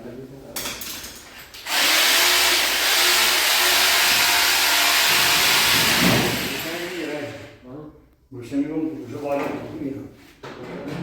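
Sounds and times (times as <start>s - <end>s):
electric drill whirring: 1.6s - 7.4s.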